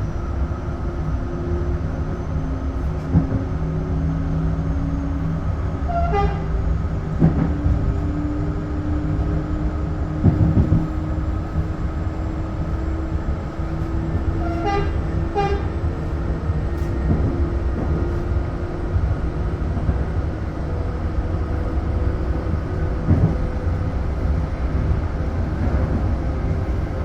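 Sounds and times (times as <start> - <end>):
train running rumble: 0.0 - 27.0
train horn toots: 5.9 - 6.5, 14.4 - 15.8.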